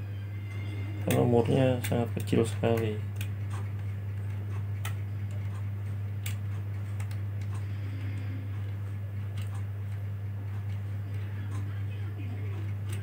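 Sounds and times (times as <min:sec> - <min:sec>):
low hum: 0:00.0 - 0:13.0
screwdriver clicks and ticks: 0:01.8 - 0:07.6, 0:09.3 - 0:10.8.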